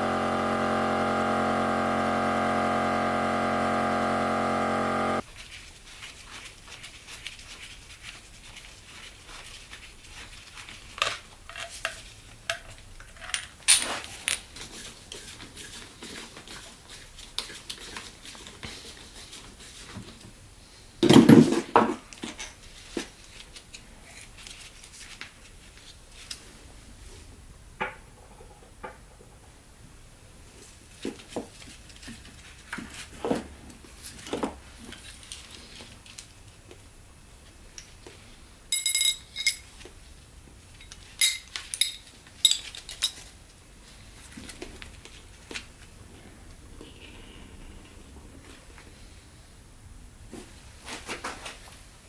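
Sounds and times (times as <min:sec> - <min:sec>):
metal parts clattering: 0:38.7 - 0:39.7, 0:41.2 - 0:43.3
metal tools clinking: 0:38.7 - 0:39.7, 0:40.8 - 0:43.3.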